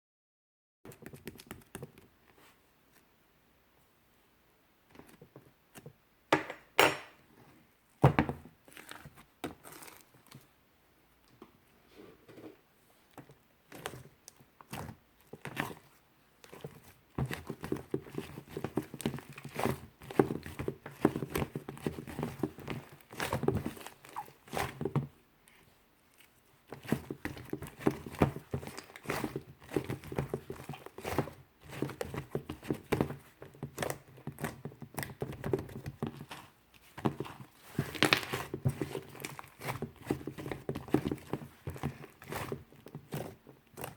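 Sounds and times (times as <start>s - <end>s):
slime squishing by hand: 8.0s - 10.6s, 12.9s - 43.9s.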